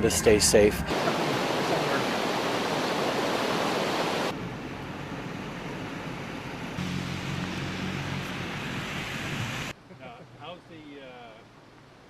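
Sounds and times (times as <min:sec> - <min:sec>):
rushing floodwater: 0:00.9 - 0:04.4
low steady hum: 0:04.3 - 0:12.0.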